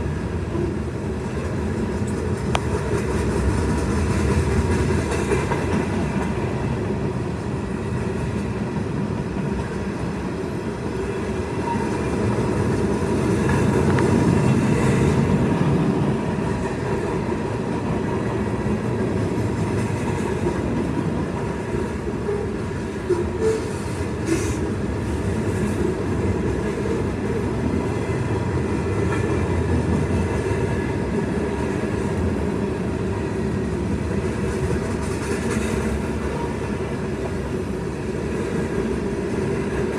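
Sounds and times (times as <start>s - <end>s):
steel wheels rumbling on rails: 0.0s - 39.9s.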